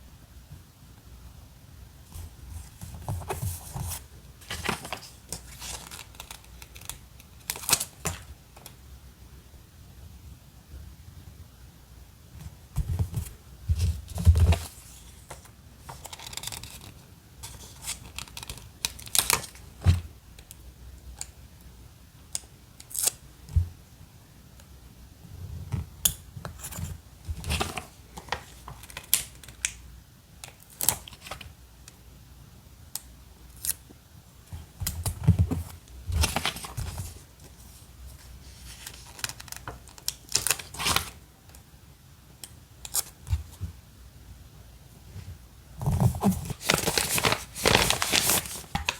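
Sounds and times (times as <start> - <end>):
paper rustling: 2.5 - 6.9, 35.0 - 41.2, 45.8 - 48.9.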